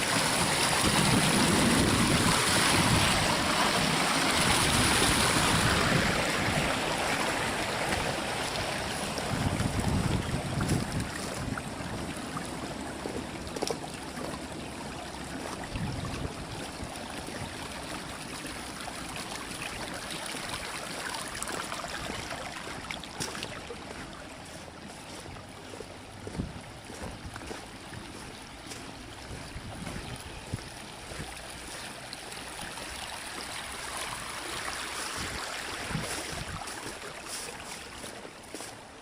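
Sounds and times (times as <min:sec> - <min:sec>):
wind gusts on microphone: 0:00.0 - 0:12.2, 0:15.6 - 0:16.9, 0:29.2 - 0:31.3, 0:35.2 - 0:36.7
running water rushing: 0:00.0 - 0:39.0.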